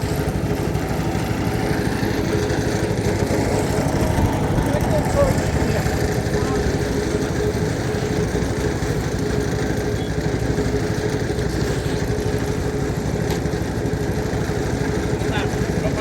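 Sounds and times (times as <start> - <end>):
small engine humming: 0.0 - 16.0.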